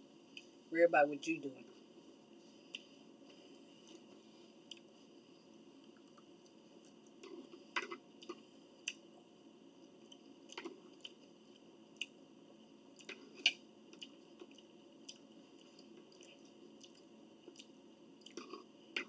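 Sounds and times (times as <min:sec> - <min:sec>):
wet chewing and mouth smacks: 0:03.8 - 0:04.9, 0:08.2 - 0:09.0, 0:10.0 - 0:12.2, 0:12.9 - 0:18.7.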